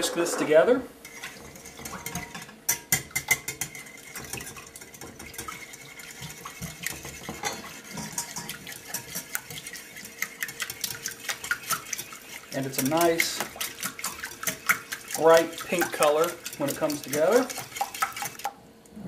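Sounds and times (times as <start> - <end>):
whisk beating egg in bowl: 1.1 - 18.6.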